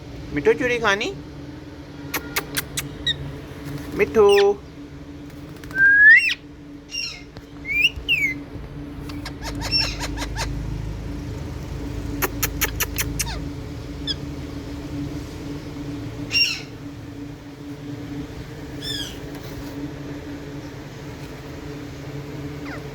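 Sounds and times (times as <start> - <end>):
steady low hum: 0.0 - 22.9
parakeet squawking: 2.0 - 3.4, 4.1 - 4.6, 6.1 - 8.4, 9.0 - 10.8, 12.1 - 14.3, 16.2 - 16.8, 18.8 - 19.2, 22.6 - 22.9.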